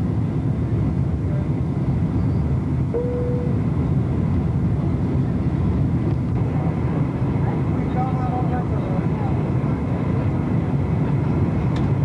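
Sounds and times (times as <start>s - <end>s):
airplane engine rumble in flight: 0.0s - 12.0s
short steady tone: 2.9s - 3.8s.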